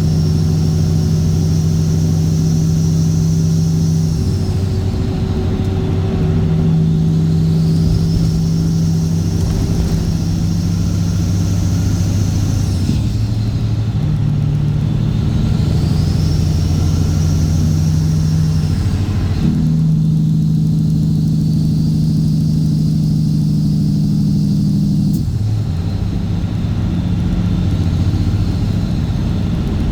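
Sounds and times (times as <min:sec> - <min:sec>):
high whine: 0:00.0 - 0:13.0
diesel truck engine running: 0:00.0 - 0:29.9.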